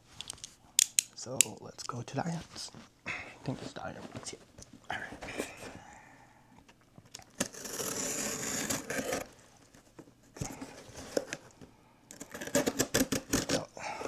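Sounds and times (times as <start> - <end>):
cardboard rustling scrape: 3.5 - 5.9, 7.3 - 13.7.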